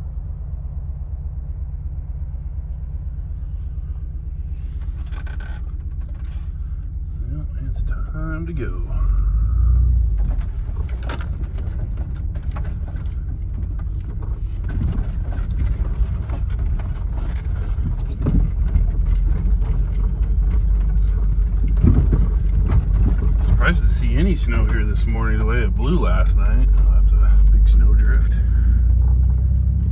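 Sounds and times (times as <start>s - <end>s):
van engine and road rumble: 0.0s - 29.9s
sharp clicks and rattles: 4.8s - 7.0s, 10.0s - 29.9s.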